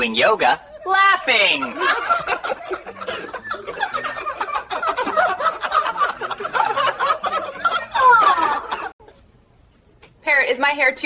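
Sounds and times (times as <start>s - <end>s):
people laughing and giggling: 0.7s - 9.2s.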